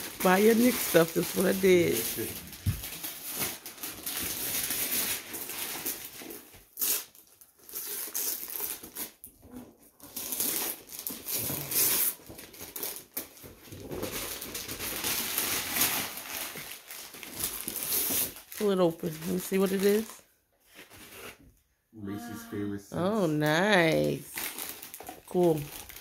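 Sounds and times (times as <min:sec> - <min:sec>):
wrapping paper tearing and crumpling: 0:00.0 - 0:21.4, 0:23.2 - 0:26.0.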